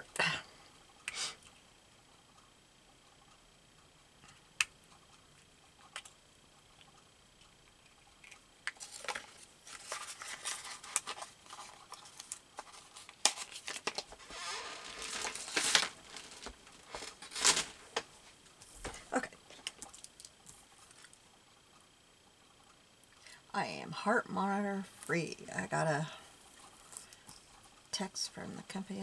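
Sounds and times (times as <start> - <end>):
paper rustling and crinkling: 8.8 - 21.1.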